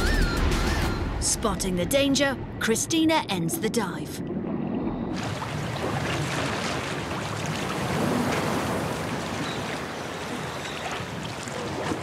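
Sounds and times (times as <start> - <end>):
sea water splashing: 3.9 - 12.0.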